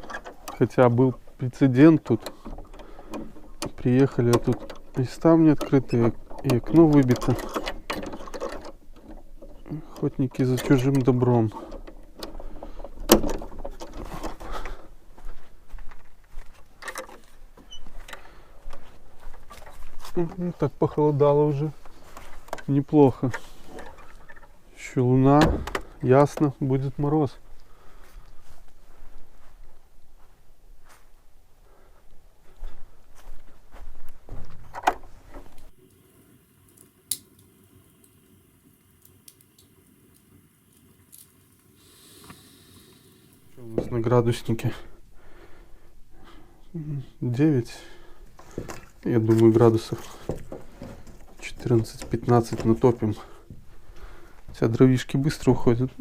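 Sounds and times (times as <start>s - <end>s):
faint clicks and ticks: 36.6s - 43.4s.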